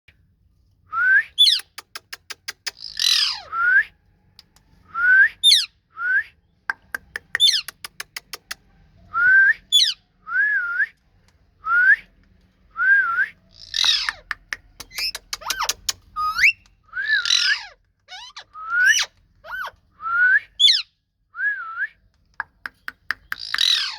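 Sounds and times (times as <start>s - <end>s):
sharp clicks: 1.6s - 2.8s, 6.7s - 8.6s, 13.9s - 16.8s, 22.1s - 23.7s
parrot shrill downward calls: 2.9s - 3.8s, 15.0s - 20.9s, 23.4s - 23.9s.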